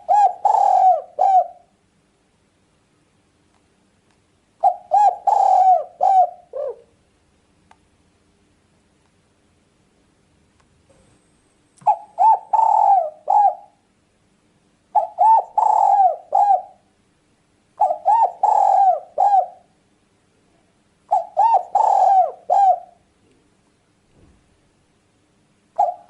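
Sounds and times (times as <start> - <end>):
dove cooing: 0.0 - 1.7, 4.6 - 7.0, 11.8 - 13.8, 14.9 - 16.9, 17.8 - 19.8, 21.1 - 23.0, 25.8 - 26.0.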